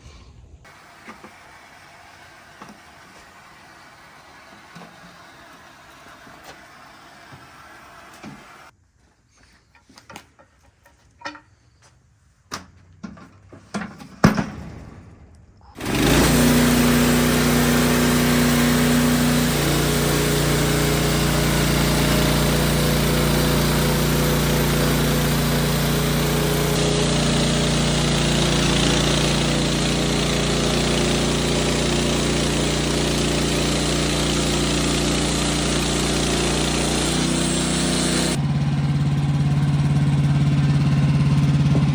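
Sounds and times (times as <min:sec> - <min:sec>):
motor-driven machine running: 0:15.8 - 0:41.9.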